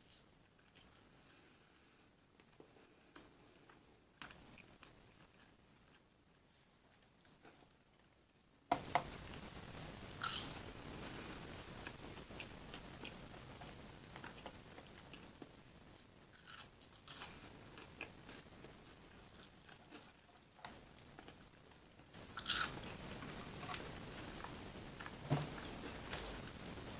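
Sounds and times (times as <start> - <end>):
person biting and chewing: 10.2 - 10.7, 22.2 - 22.9
crunching: 10.2 - 10.8, 11.8 - 18.8, 22.1 - 26.9.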